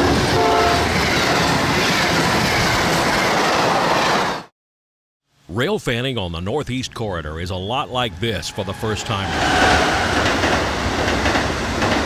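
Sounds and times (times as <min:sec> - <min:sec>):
high-speed train passing: 0:00.0 - 0:04.5, 0:07.6 - 0:12.0.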